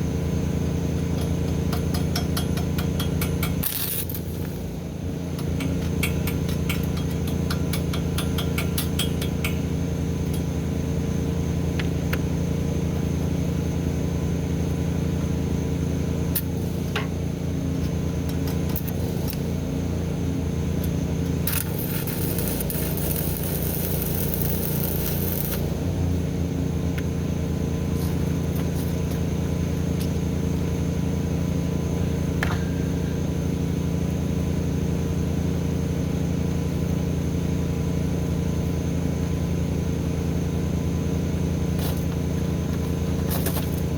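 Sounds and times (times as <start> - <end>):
engine running steadily: 0.0 - 43.9
high hiss: 3.6 - 4.7, 21.5 - 25.9.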